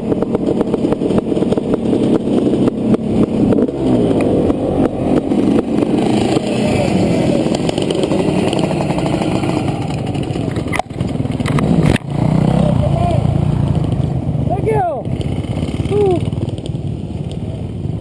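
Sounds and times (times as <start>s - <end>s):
motocross engine revving: 0.0s - 16.9s.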